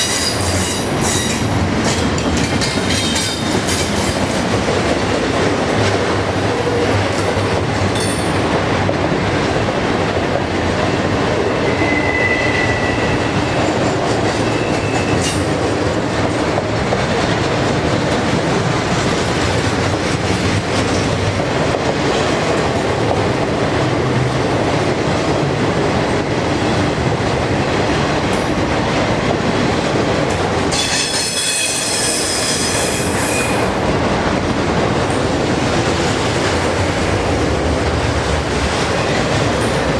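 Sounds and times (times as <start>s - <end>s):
train wheels squealing: 0.0s - 1.5s, 11.5s - 15.4s, 30.8s - 33.7s
train rumbling and clattering: 0.0s - 39.9s.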